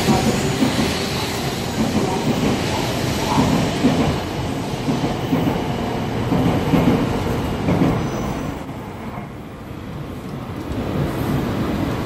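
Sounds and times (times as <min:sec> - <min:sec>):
clatter of train wheels: 0:00.0 - 0:09.3
train passing with rumble: 0:00.0 - 0:12.0.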